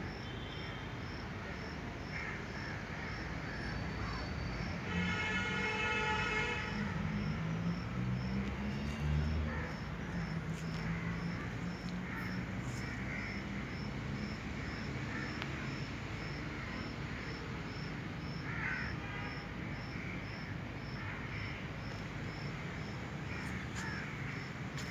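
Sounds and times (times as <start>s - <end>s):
insect chirping: 6.6s - 24.9s.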